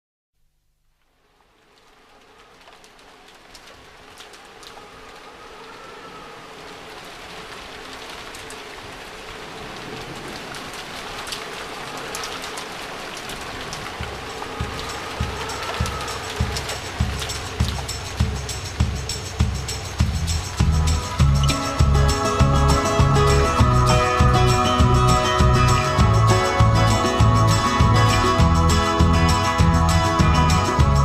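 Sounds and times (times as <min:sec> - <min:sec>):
rain-like hiss with patter: 0:00.8 - 0:31.0
kick drum thumping: 0:14.0 - 0:21.4.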